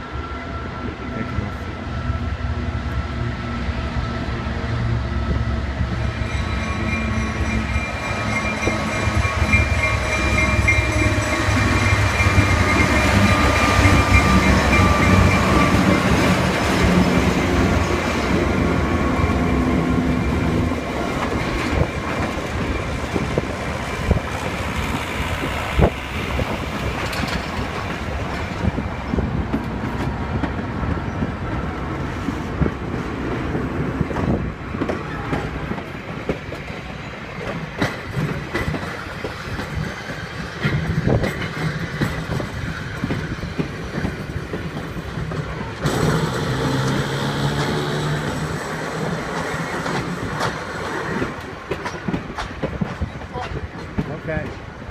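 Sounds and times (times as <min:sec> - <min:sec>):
locomotive engine drone: 0:00.0 - 0:37.3, 0:43.7 - 0:52.0
wheels clicking over rail joints: 0:19.4 - 0:31.2, 0:34.0 - 0:54.9.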